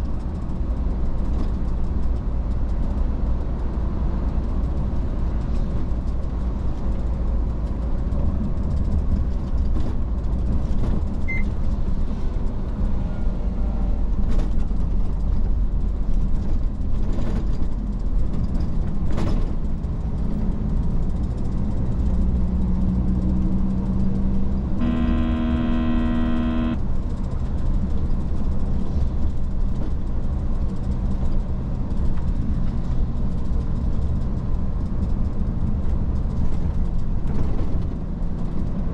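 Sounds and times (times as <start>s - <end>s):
truck engine and road drone: 0.0s - 38.9s
truck horn: 24.8s - 26.8s.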